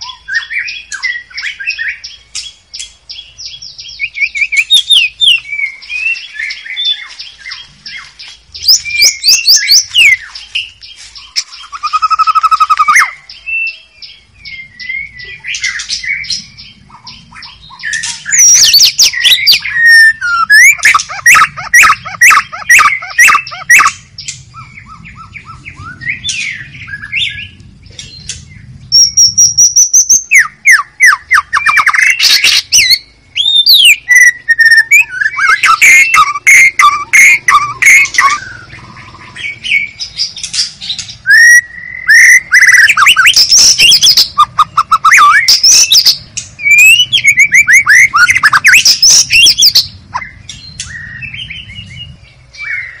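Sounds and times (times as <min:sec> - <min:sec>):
bird singing varied song: 0:00.0 - 0:53.0.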